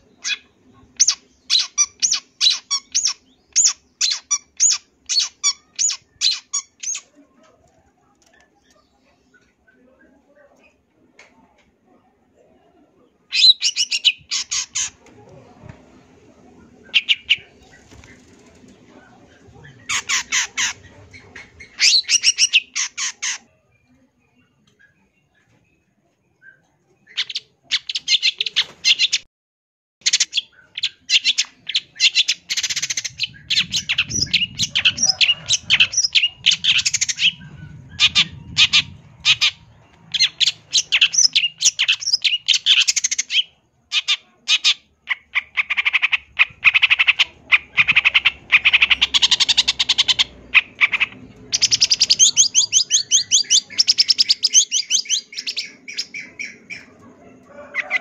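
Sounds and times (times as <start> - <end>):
bird chattering song: 0.0 - 7.2, 13.3 - 15.0, 16.7 - 23.5, 26.4 - 29.2, 30.0 - 57.0.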